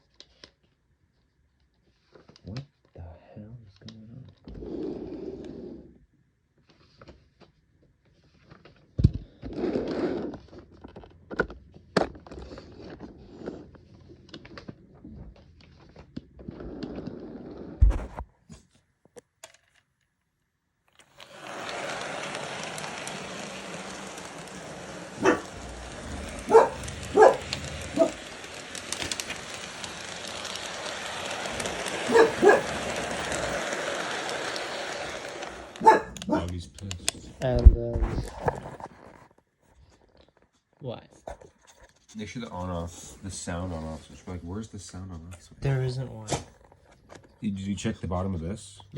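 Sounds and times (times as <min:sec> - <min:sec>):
dog barking: 0:25.2 - 0:28.2, 0:32.1 - 0:32.8, 0:35.8 - 0:36.5.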